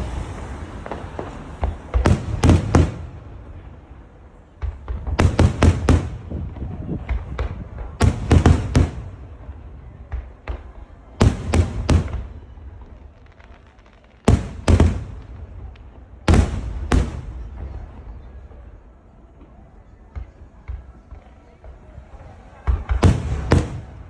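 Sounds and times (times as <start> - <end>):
firework shells booming: 0.0 - 3.9, 4.5 - 18.0, 22.6 - 24.0
faint firework crackling: 0.0 - 24.0.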